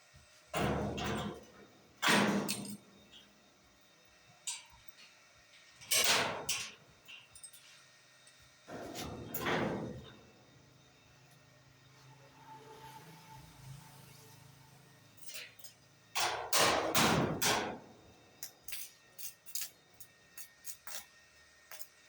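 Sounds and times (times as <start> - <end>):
gate scraping and rolling: 0.6 - 2.9, 8.7 - 10.3.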